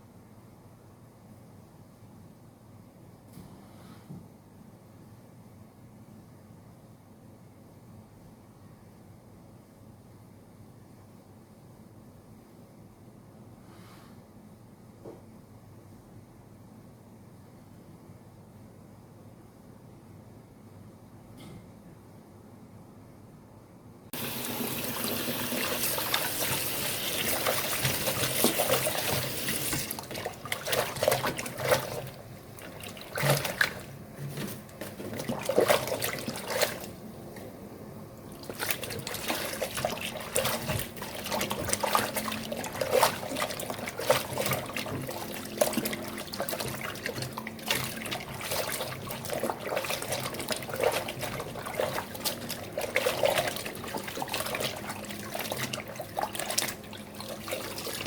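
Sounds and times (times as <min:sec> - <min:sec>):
water running from a tap: 0:24.2 - 0:31.3, 0:38.9 - 0:58.0.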